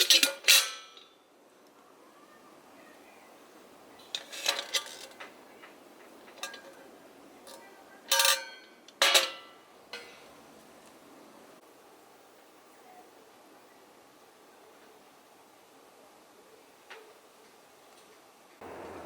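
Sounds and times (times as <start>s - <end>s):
metal kettle clinks and clanks: 0.0s - 1.1s, 6.3s - 6.8s, 7.5s - 9.6s.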